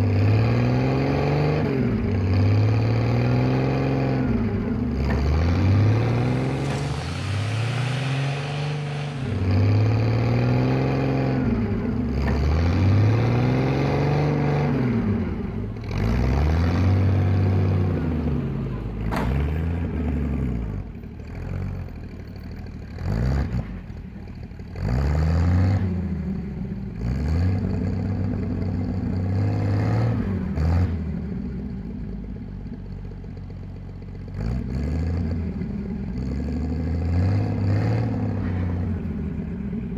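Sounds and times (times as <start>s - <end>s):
truck engine running: 0.0s - 39.9s
engine clattering knocks: 19.0s - 20.1s.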